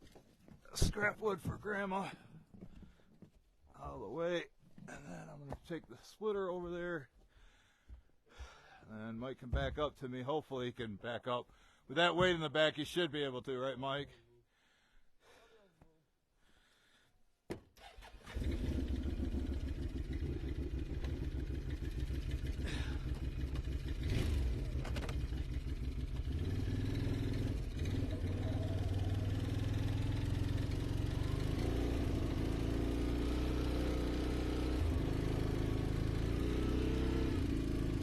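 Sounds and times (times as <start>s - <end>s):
engine starting and running: 17.8s - 38.0s.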